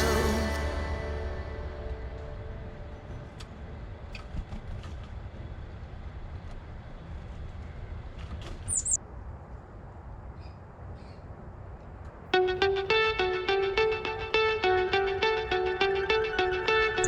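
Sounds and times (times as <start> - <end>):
small bird chirp: 8.7 - 9.0.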